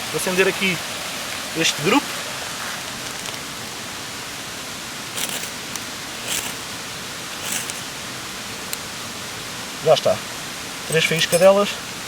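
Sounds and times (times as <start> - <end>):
ferrocerium rod scraping: 5.2 - 6.7, 7.3 - 8.0, 10.9 - 11.6.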